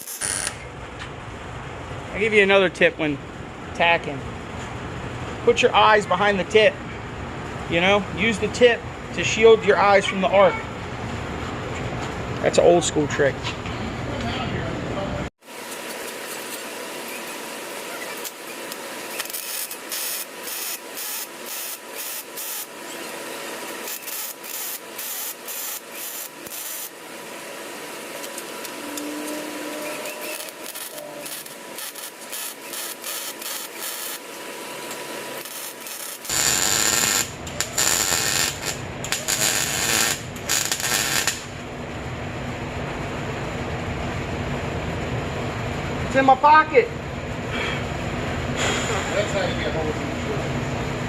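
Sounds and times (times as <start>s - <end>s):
welding arc crackling: 0.0s - 0.7s, 15.5s - 41.6s.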